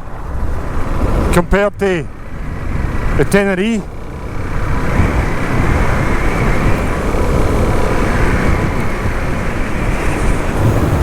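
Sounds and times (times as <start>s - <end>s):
wind rush on microphone: 4.1s - 11.0s.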